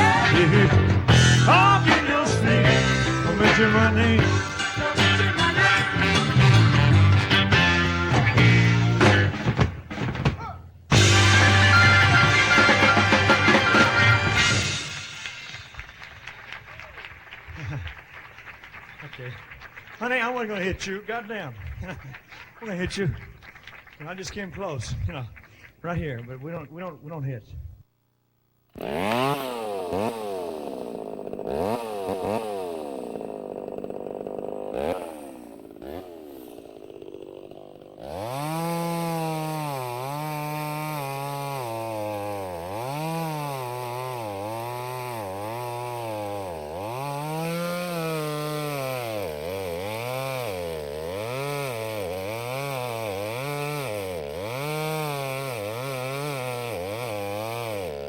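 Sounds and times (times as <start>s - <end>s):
two-stroke chainsaw revving: 0.0s - 9.4s, 10.9s - 15.5s, 28.7s - 58.0s.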